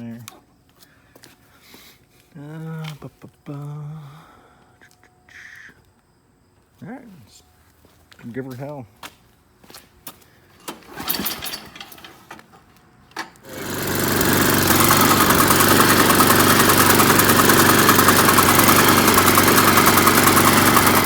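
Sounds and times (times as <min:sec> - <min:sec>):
snowblower engine running: 0:13.4 - 0:21.0.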